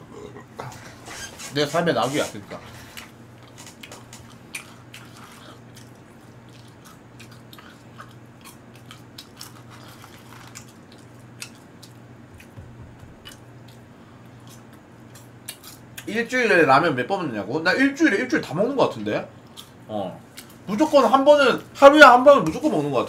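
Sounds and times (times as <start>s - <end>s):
low steady hum: 0.0s - 23.0s
man chewing food: 2.6s - 16.1s, 19.4s - 20.7s.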